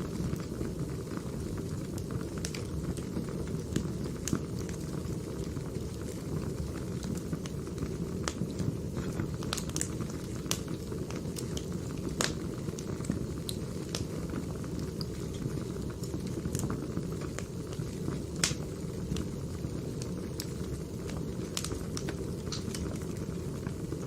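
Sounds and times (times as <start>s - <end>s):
firewood burning and crackling: 0.0s - 24.0s.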